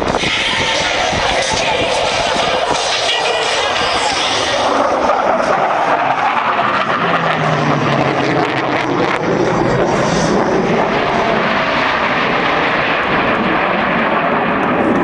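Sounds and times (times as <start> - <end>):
jets flying over: 0.0 - 15.0.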